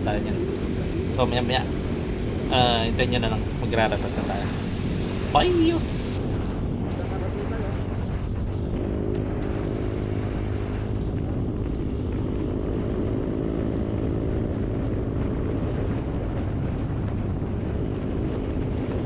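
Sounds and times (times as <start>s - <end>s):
motorcycle engine cruising: 0.0s - 19.0s
road noise: 0.0s - 19.0s
wind noise: 0.0s - 19.0s.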